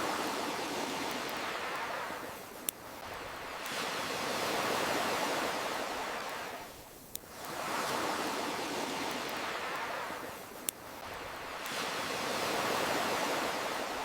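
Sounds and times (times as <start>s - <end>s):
ocean waves washing in: 0.0s - 14.0s
campfire popping: 9.0s - 11.9s.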